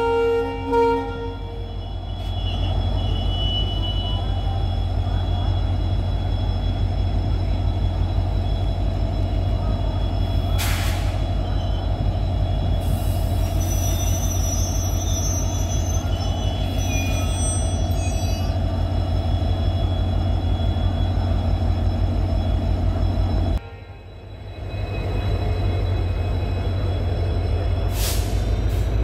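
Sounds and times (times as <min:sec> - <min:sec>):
locomotive low drone: 0:00.0 - 0:29.0
faint high wheel squeal: 0:01.2 - 0:29.0
hiss of air: 0:10.6 - 0:11.2, 0:27.9 - 0:28.9.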